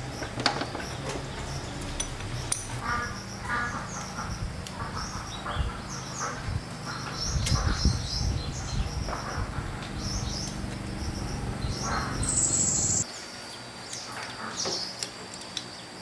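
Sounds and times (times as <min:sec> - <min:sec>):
birds chirping: 0:00.0 - 0:15.0
low mechanical hum: 0:00.0 - 0:16.0.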